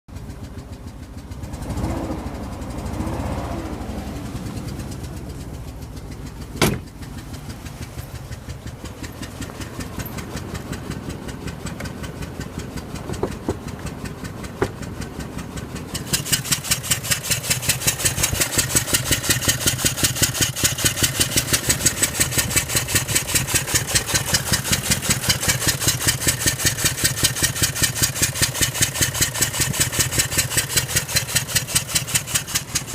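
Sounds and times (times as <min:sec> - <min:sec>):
car engine idling: 0:00.1 - 0:32.9
fast regular engine tapping: 0:00.1 - 0:32.9
sharp knock: 0:06.6 - 0:07.0.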